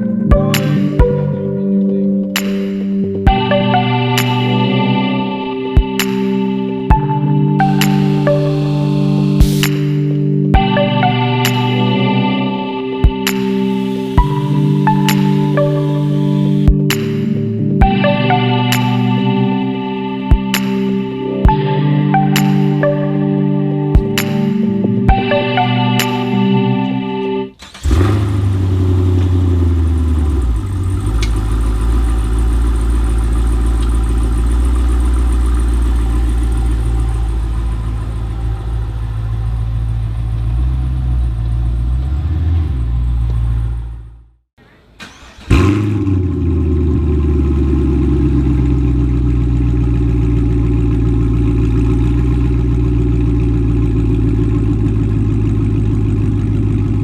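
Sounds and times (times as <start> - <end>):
engine starting: 27.5 - 32.8, 44.6 - 46.8
car engine idling: 27.6 - 44.2, 45.0 - 57.0.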